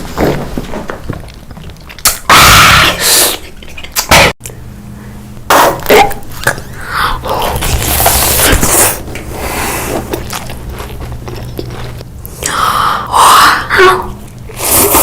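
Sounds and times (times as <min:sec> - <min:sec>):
chewing: 0:01.2 - 0:02.3, 0:07.4 - 0:12.4.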